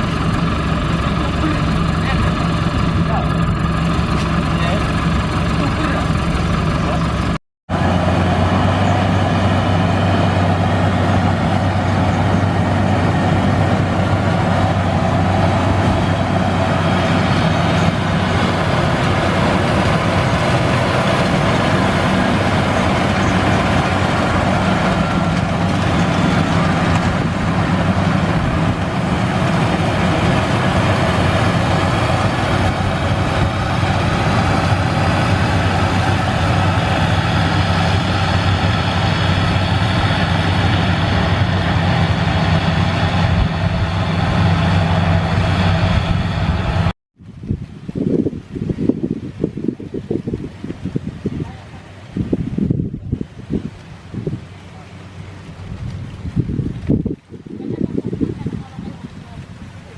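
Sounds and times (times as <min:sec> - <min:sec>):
diesel engine drone: 0:00.0 - 0:47.0.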